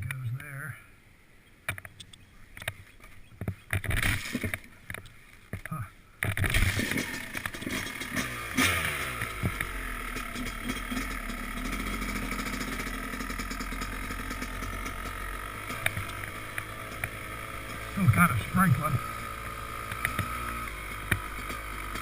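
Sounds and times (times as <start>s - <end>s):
dirt bike engine starting and revving: 3.7s - 4.7s, 6.2s - 22.0s.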